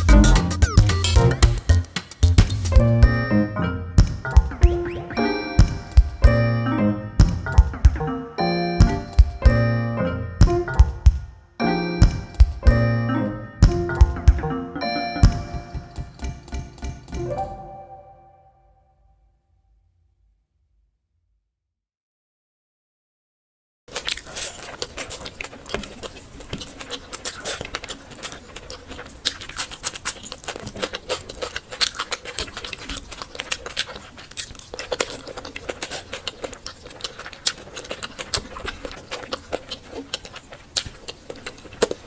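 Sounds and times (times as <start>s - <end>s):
wet chewing sounds: 23.9s - 42.0s.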